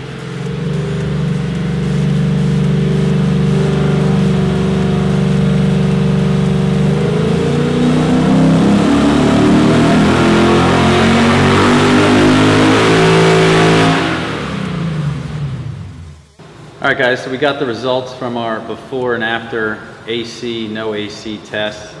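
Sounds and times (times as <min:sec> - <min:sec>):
car engine revving under load: 0:00.0 - 0:16.4.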